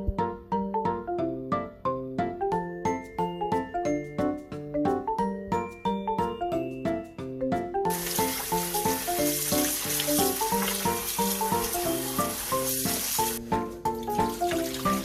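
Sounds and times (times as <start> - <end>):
light plucked background music: 0.0 - 15.0
loud even hiss: 7.9 - 13.4.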